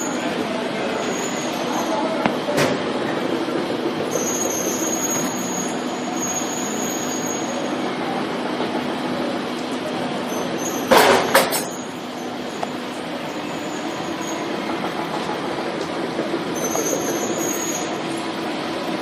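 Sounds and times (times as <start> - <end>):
production machine running: 0.0 - 19.0.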